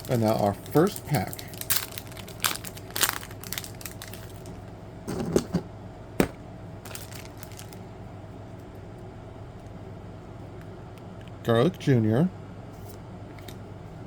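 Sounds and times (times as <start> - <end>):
wrapper being torn and crinkled: 0.0 - 4.7, 6.8 - 7.8.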